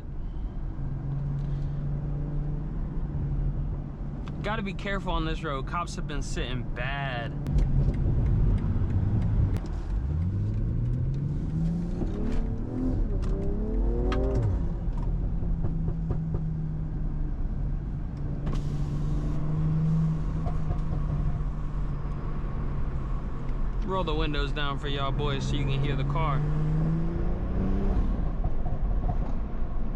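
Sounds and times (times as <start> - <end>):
car engine accelerating: 6.9 - 29.8.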